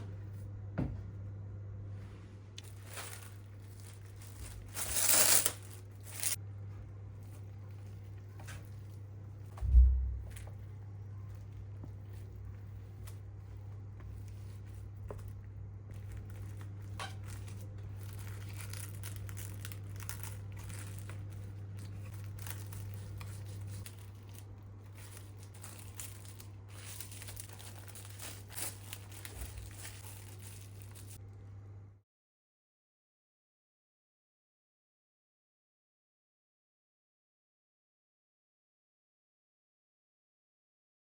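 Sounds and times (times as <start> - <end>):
low hum: 0.0 - 32.0
wrapping crinkling: 2.6 - 6.4, 10.2 - 31.3.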